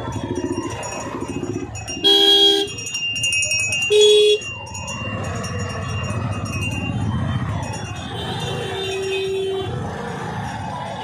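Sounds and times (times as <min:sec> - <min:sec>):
street traffic noise: 0:00.0 - 0:11.0
vehicle horn honks: 0:02.0 - 0:02.7.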